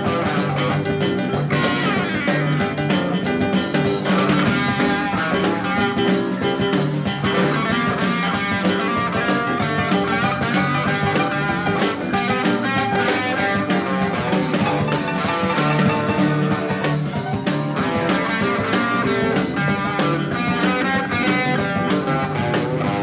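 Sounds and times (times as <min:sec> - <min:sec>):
drums steady beat: 0:00.0 - 0:23.0
electric guitar: 0:00.0 - 0:23.0.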